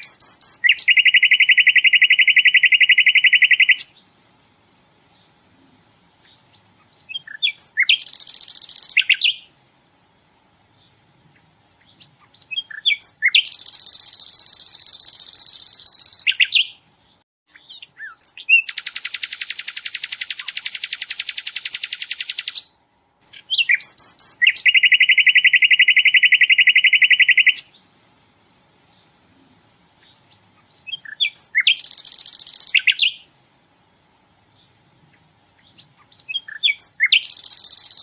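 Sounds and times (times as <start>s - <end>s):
short bird chirps: 0.0s - 4.0s, 6.2s - 9.6s, 11.8s - 16.8s, 17.5s - 27.8s, 30.0s - 33.3s, 35.6s - 38.0s
flycatcher rapid trills: 31.4s - 33.1s, 36.8s - 38.0s.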